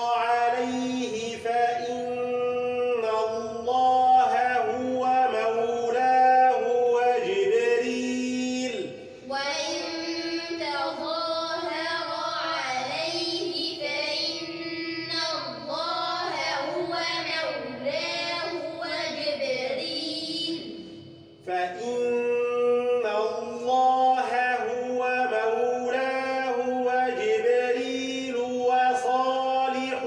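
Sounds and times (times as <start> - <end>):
children repeating in unison: 0.0 - 22.0
melodic religious recitation: 0.0 - 30.0.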